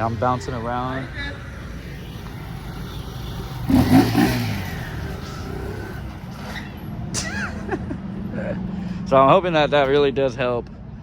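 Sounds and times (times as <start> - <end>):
vehicle engine revving: 0.0 - 6.8.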